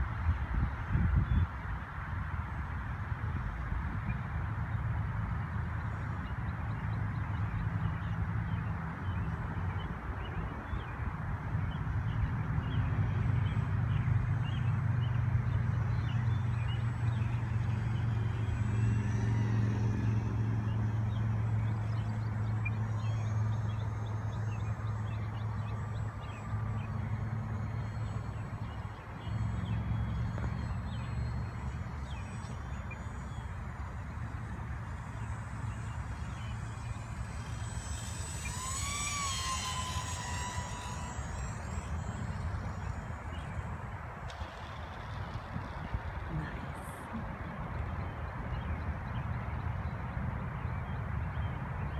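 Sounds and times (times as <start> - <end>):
model airplane motors humming: 0.0 - 51.9
small birds chirping: 11.7 - 50.0.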